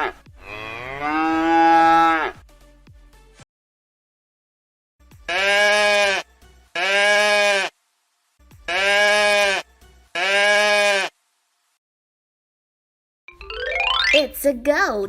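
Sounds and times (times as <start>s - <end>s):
goat bleating: 5.3s - 7.7s, 8.7s - 11.1s.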